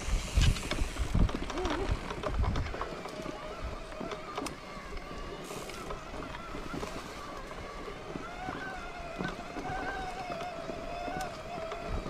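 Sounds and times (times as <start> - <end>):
wind on microphone: 0.0 - 4.2
bicycle rolling noise: 0.0 - 12.0
steady wavering whine: 2.7 - 12.0.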